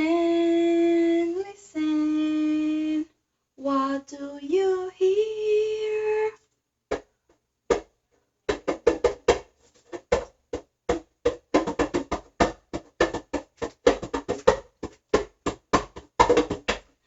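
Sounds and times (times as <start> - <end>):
drum strikes: 8.5 - 9.4.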